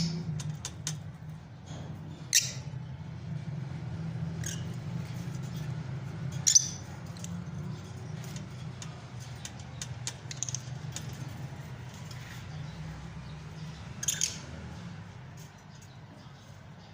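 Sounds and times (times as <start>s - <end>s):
lovebirds squawking and chirping: 2.1s - 2.8s, 4.3s - 16.3s.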